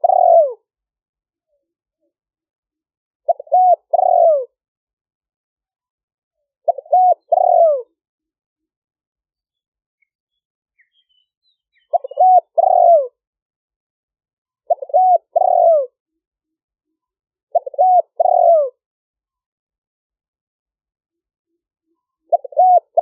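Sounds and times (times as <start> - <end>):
dove cooing: 0.0 - 0.7, 3.2 - 4.6, 6.6 - 8.0, 11.8 - 13.2, 14.6 - 16.0, 17.5 - 18.8, 22.3 - 23.0.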